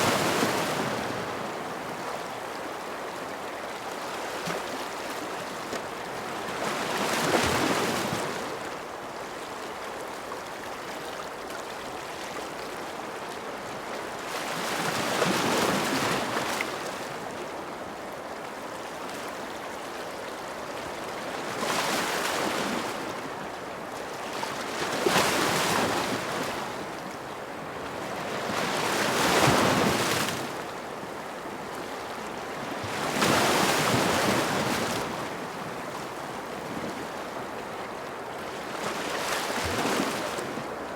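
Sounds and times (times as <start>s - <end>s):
ocean waves breaking on shore: 0.0s - 3.4s, 21.0s - 40.9s.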